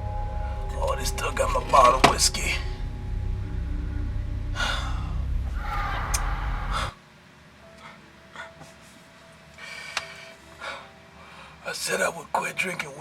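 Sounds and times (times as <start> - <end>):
low rumble: 0.0 - 7.0.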